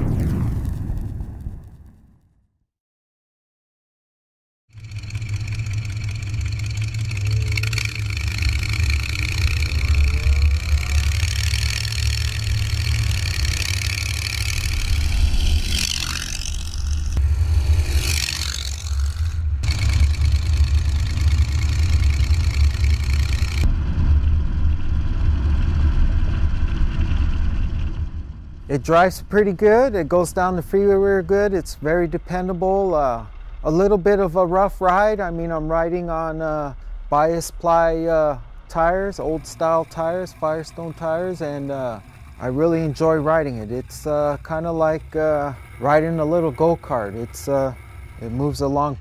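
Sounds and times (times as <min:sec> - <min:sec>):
truck engine running: 0:04.7 - 0:49.0
sweeping whooshes: 0:07.9 - 0:28.7.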